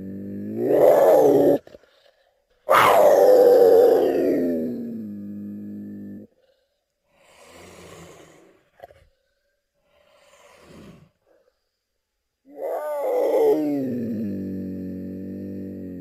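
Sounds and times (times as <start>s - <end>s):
serval breathy exhalations: 6.3s - 11.5s.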